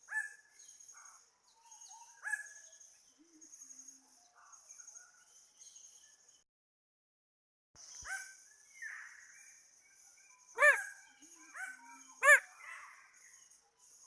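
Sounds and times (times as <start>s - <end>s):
fainter calls: 10.6s - 10.9s, 12.2s - 12.5s.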